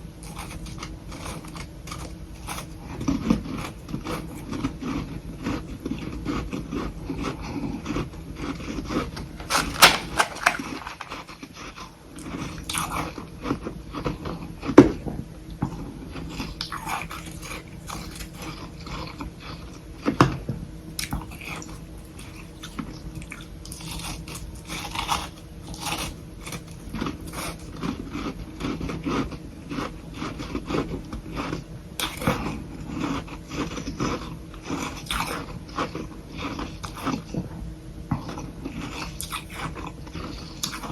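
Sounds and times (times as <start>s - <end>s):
crunchy chewing: 0.0s - 40.9s.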